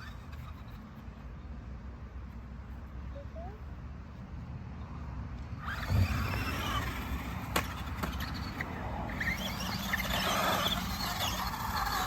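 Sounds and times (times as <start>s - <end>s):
electric toy truck driving: 0.0s - 1.1s, 5.6s - 12.0s.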